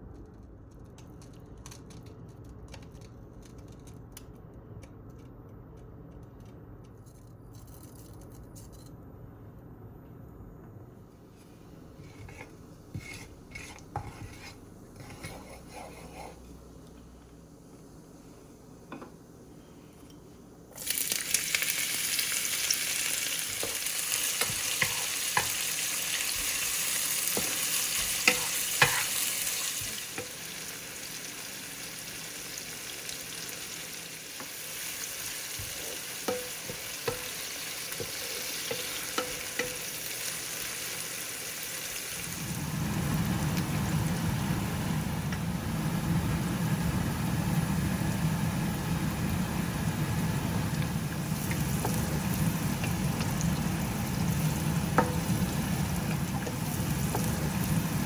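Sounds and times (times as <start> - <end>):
food sizzling in hot oil: 20.8 - 58.0
utensil knocking in pan: 54.4 - 57.5.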